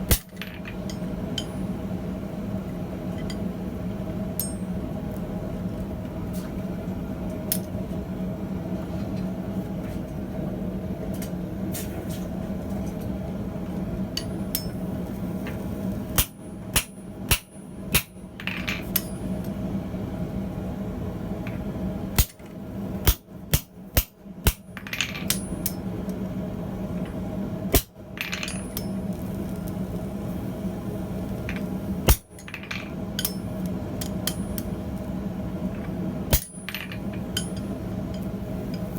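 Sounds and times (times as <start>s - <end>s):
hammer striking steel on anvil: 0.0s - 1.7s, 4.4s - 4.7s, 14.2s - 14.8s, 16.2s - 19.3s, 22.2s - 22.4s, 23.0s - 25.8s, 33.2s - 33.5s, 36.3s - 38.2s.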